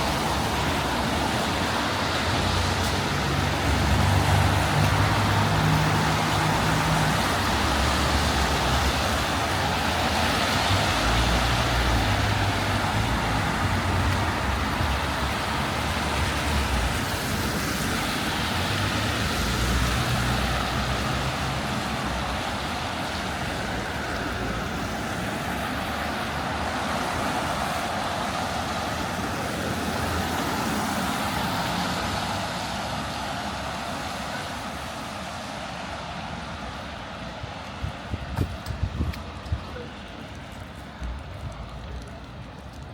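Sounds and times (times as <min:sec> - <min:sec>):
traffic on wet street: 0:00.0 - 0:42.9
heavy vehicle low rumble: 0:36.2 - 0:42.9.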